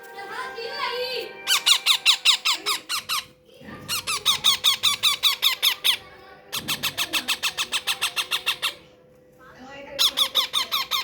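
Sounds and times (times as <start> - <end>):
parrot chicks begging calls: 1.2 - 8.9, 9.9 - 11.0.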